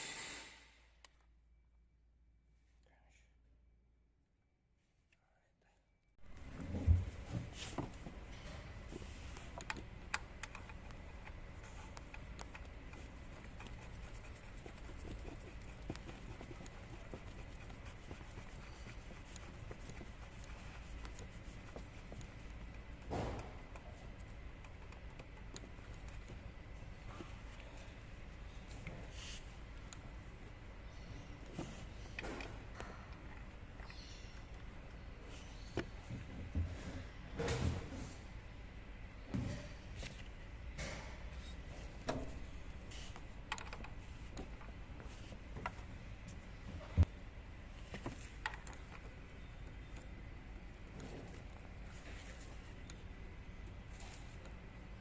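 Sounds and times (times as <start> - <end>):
low background hum: 0.0 - 55.0
hand tools clicking and tapping: 9.5 - 26.4.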